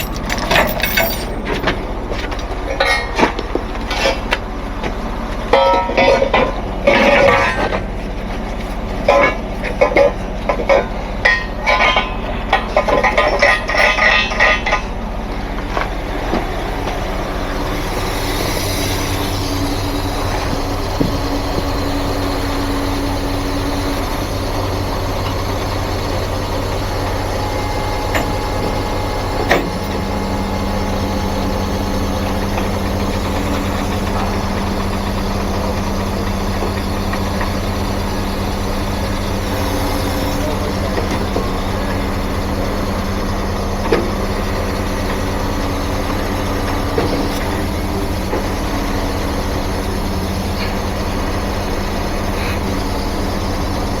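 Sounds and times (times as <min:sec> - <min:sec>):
metallic clicks and clanks: 0:00.0 - 0:04.3
truck engine idling: 0:00.0 - 0:54.0.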